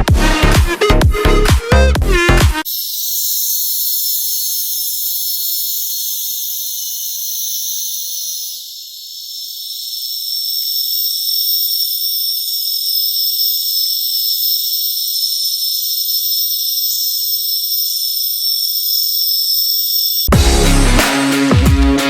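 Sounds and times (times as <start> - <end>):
insect chorus shrill: 2.6 - 20.3.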